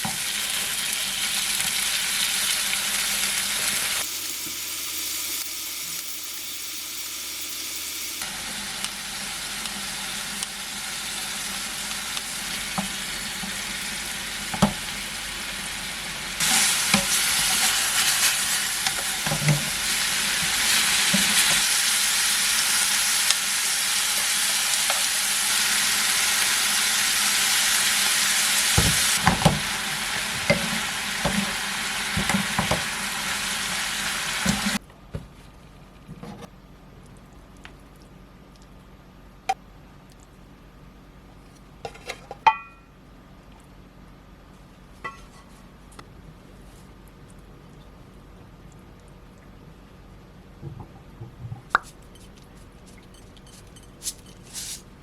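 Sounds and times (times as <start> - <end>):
food sizzling in a pan: 0.0 - 34.8.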